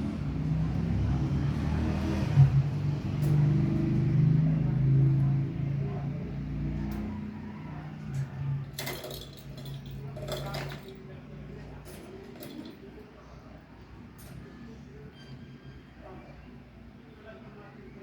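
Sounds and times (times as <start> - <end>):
engine humming: 0.0 - 7.5.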